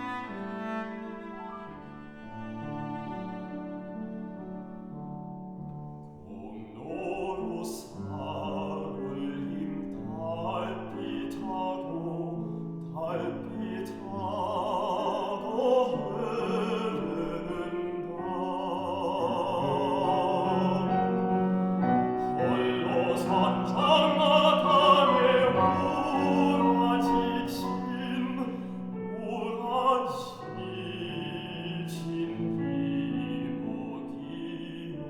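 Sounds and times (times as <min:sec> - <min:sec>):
strings: 0:00.0 - 0:06.0, 0:12.9 - 0:35.0
piano: 0:00.0 - 0:35.0
baritone singing with vibrato: 0:06.3 - 0:35.0.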